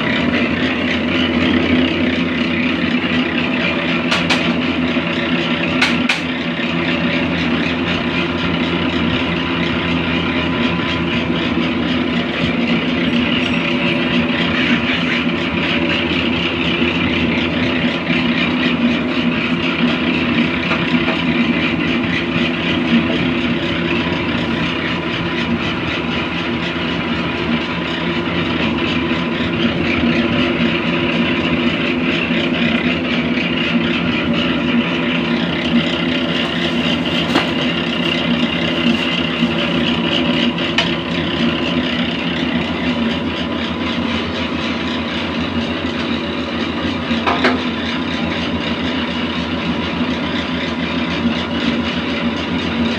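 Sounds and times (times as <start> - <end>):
oil press machine hum: 0.0 - 52.9.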